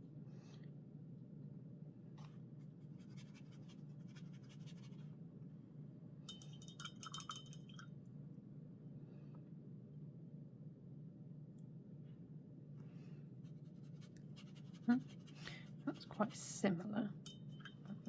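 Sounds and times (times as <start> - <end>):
low steady hum: 0.0 - 18.0
paintbrush scratching on paper: 2.9 - 5.0, 13.4 - 16.6
light clinks: 6.3 - 7.9, 17.2 - 18.0.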